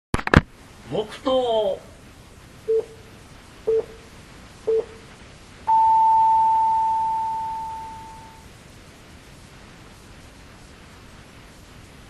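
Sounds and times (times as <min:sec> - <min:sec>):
long higher tone: 0:05.7 - 0:08.4.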